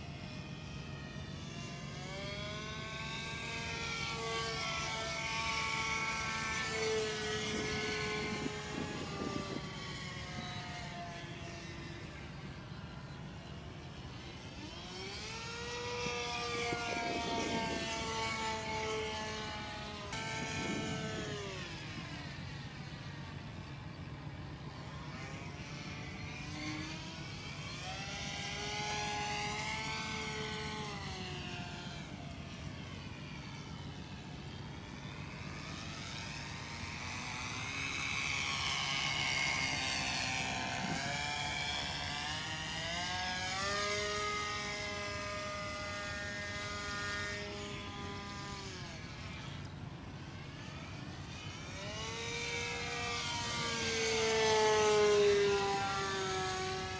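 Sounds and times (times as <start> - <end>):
model airplane engine buzzing: 0.0 - 56.9.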